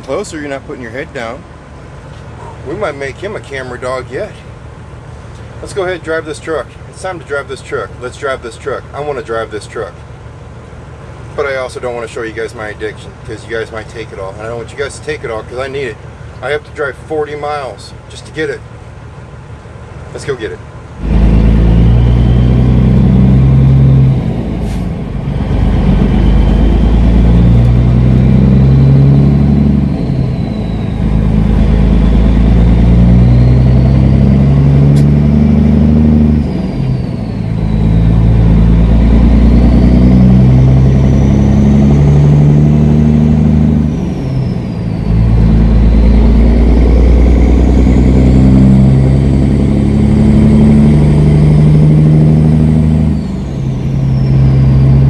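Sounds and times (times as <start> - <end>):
truck diesel engine accelerating: 0.0 - 55.0
high gear whine: 19.6 - 55.0.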